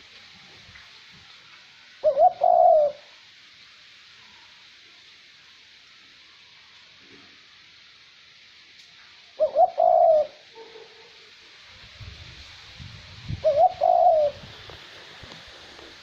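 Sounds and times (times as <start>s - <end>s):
light wind hiss: 0.0s - 16.0s
dove cooing: 2.0s - 3.2s, 9.4s - 10.8s, 13.4s - 14.5s.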